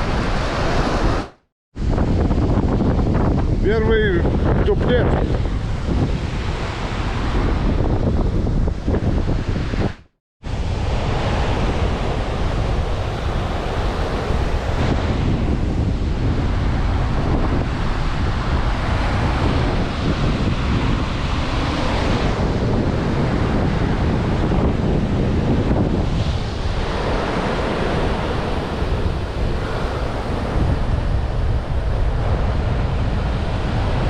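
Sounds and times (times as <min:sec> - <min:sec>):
sea surf: 0:00.0 - 0:34.0
wind buffeting microphone: 0:00.0 - 0:34.0.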